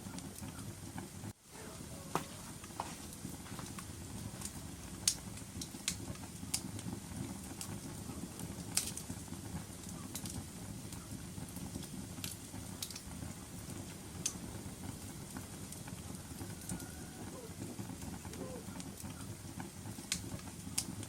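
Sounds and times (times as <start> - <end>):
fire popping: 0.0 - 21.0
wood fire crackling: 0.0 - 21.0.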